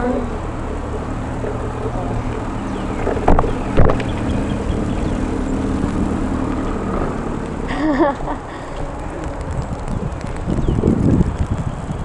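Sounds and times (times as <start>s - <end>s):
bicycle riding rumble: 0.0s - 12.0s
wind on microphone: 2.2s - 7.4s, 8.4s - 12.0s
sharp knocks: 3.0s - 4.2s.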